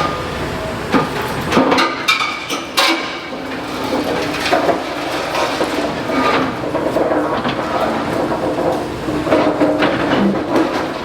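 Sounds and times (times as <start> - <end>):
excavator engine running: 0.0 - 11.0
masonry breaking clanks: 1.0 - 11.0.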